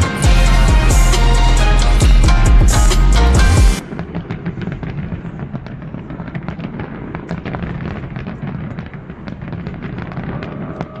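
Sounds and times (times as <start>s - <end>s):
fireworks bangs and crackles: 3.4s - 11.0s.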